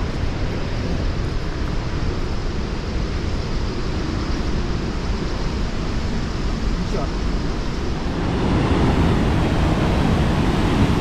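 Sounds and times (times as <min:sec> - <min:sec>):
waterfall rushing: 0:06.6 - 0:11.0.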